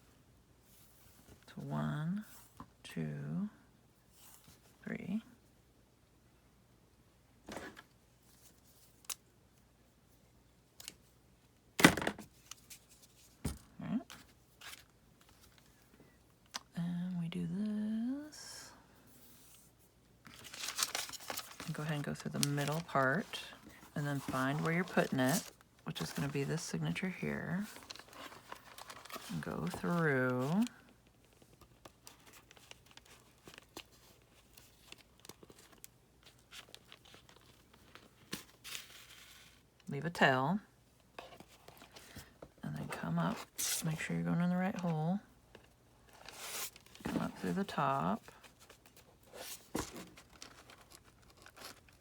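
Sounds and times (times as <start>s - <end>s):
paper rustling: 20.2s - 39.7s, 45.5s - 52.0s.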